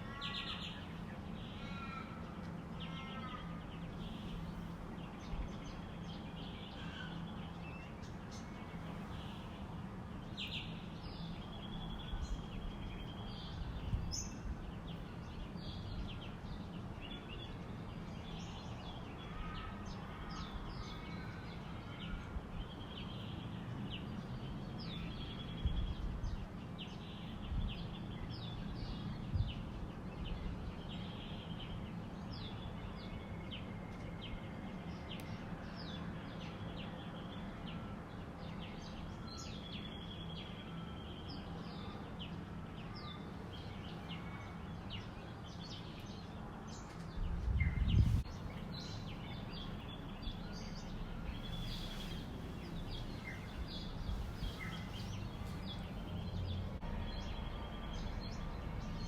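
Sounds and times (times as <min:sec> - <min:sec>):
birds chirping and calling: 0:00.0 - 0:29.7, 0:42.8 - 0:56.8.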